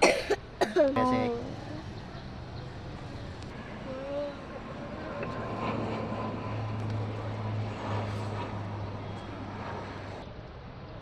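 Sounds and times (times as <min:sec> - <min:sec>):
turboprop airliner passing: 0:00.5 - 0:11.0.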